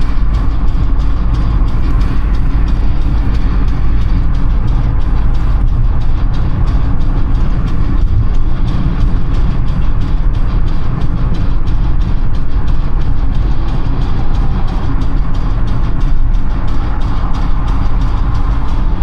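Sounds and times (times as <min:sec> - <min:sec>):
car engine running: 0:00.0 - 0:19.0
tyres rumbling on road: 0:00.0 - 0:19.0.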